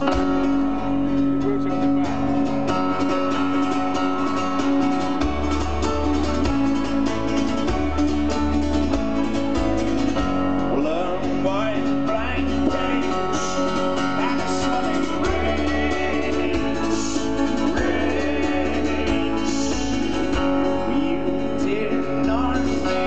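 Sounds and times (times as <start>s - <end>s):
low bass notes: 0.0s - 23.0s
strummed acoustic guitar: 0.0s - 23.0s.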